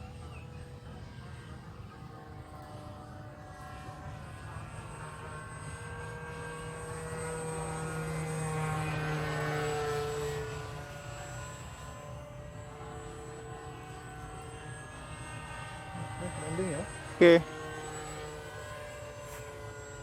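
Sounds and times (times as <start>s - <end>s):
model plane motor whining: 0.0s - 20.0s.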